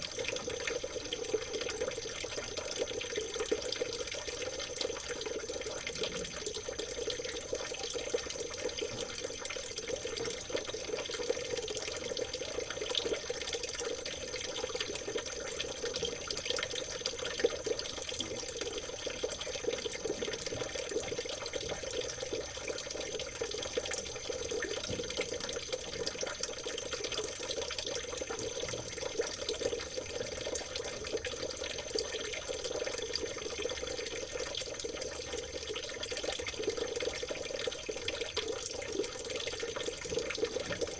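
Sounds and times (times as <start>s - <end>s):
stream babbling over stones: 0.0s - 12.7s.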